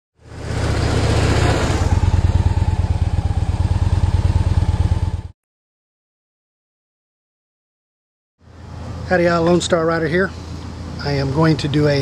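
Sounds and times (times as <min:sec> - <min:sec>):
motorcycle engine idling: 0:00.3 - 0:05.3.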